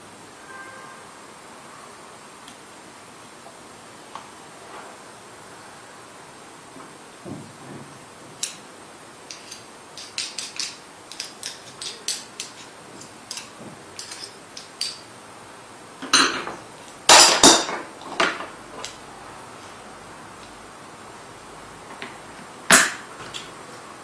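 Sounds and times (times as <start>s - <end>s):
small hard parts clicking: 8.4s - 8.6s, 9.3s - 15.1s.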